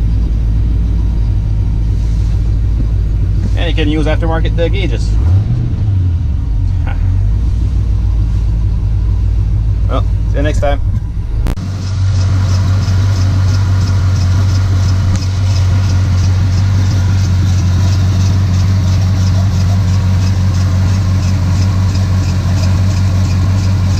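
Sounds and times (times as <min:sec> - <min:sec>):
engine idling: 0:00.0 - 0:23.9
light engine ticking: 0:11.7 - 0:23.9.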